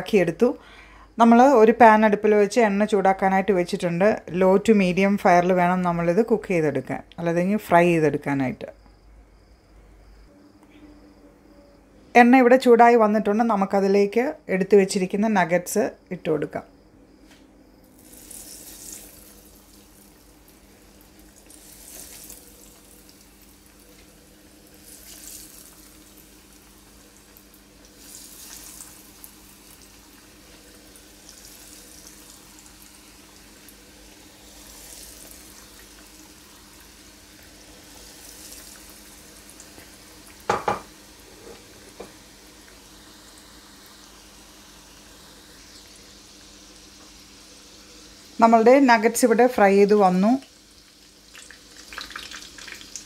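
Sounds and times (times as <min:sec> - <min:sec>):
chicken nuggets sizzling in oil: 0:17.7 - 0:53.0.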